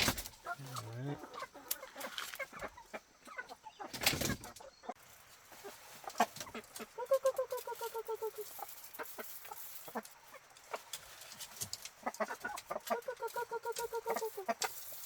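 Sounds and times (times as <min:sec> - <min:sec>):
chickens clucking: 0:00.0 - 0:15.0
chicken wavering call: 0:06.8 - 0:09.6, 0:12.7 - 0:14.8.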